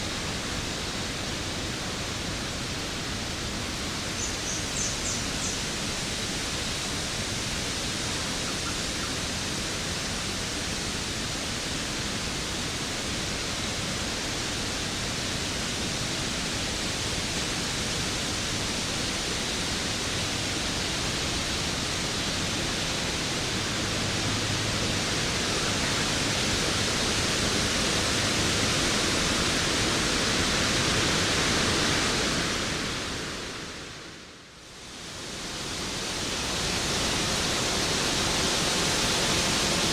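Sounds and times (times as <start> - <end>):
waterfall rushing: 0.0 - 34.1, 34.8 - 39.9.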